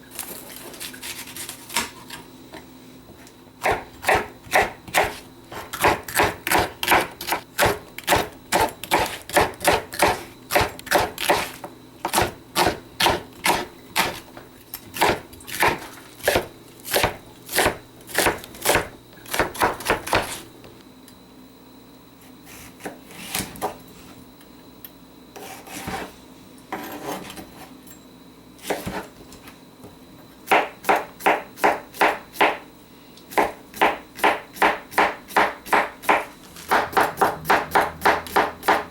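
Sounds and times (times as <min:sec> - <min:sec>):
knife chopping vegetables: 0:00.2 - 0:02.2, 0:03.6 - 0:20.5, 0:22.5 - 0:23.8, 0:25.4 - 0:26.1, 0:28.6 - 0:29.2, 0:30.4 - 0:32.6, 0:33.3 - 0:38.9.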